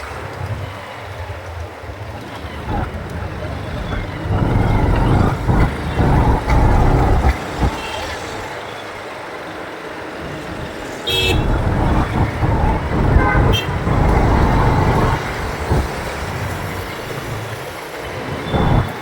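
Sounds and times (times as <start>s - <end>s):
wind noise: 2.4s - 8.6s, 10.5s - 19.0s
traffic engines rumbling: 2.4s - 8.7s, 10.0s - 19.0s
high-pitched horn beep: 11.1s - 15.1s.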